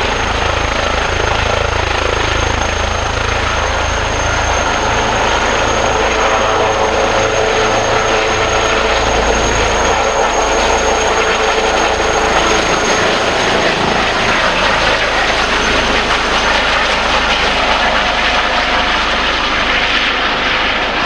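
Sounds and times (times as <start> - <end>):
helicopter rotor and engine: 0.0 - 21.0.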